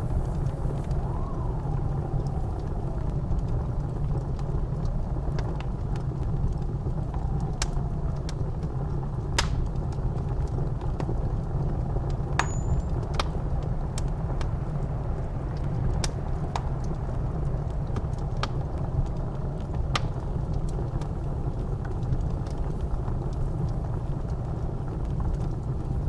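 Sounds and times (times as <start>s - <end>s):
blizzard wind howling: 0.0s - 26.0s
wood fire crackling: 0.0s - 26.0s.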